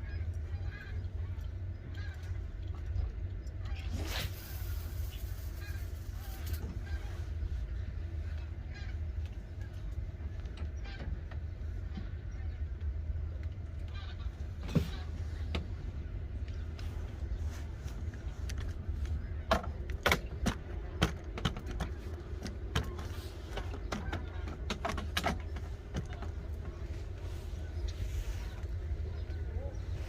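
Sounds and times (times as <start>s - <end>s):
sharp clicks and knocks: 19.5s - 26.4s.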